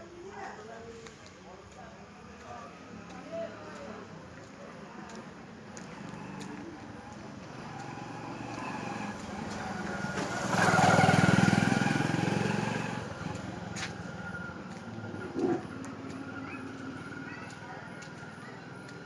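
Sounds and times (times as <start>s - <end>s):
vehicle engine passing by: 5.1s - 19.0s.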